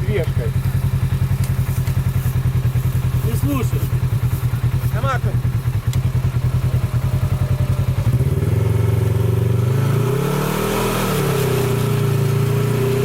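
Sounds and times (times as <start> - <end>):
vehicle engine revving: 0.0 - 13.0.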